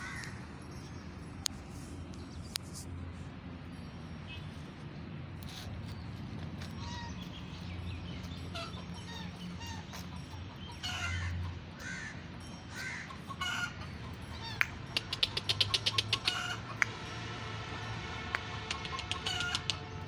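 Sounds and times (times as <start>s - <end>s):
birds calling: 5.4s - 17.0s, 18.7s - 19.8s.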